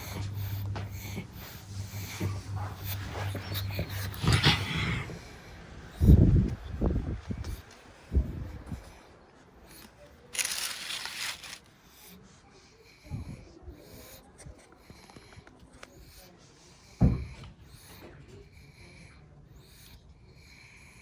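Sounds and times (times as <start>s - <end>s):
dog snorting: 0.0s - 6.3s
dog breathing noisily through nose: 0.0s - 21.0s.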